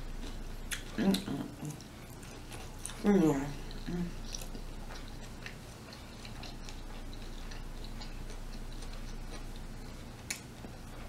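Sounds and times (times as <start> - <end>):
low hum: 0.0 - 11.0
person chewing food: 0.0 - 11.0.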